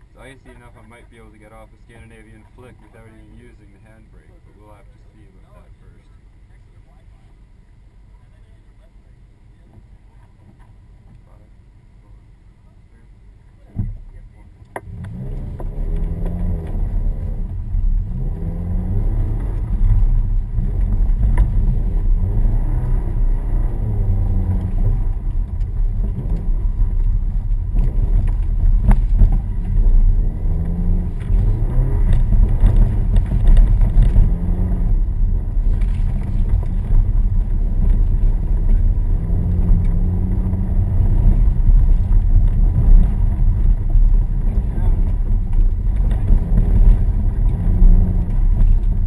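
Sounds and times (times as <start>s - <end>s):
road and snow rumble: 0.0s - 49.0s
car engine revving: 13.8s - 49.0s.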